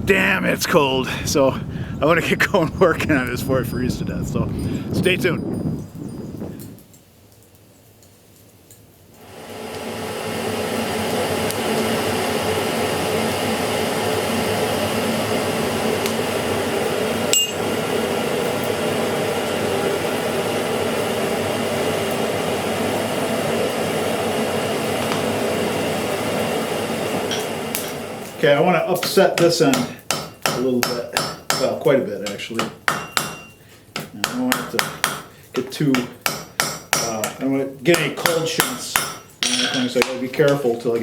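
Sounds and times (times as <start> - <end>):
forge blower running: 9.2 - 31.6
sharp metallic clink: 17.3 - 17.6, 33.0 - 33.6.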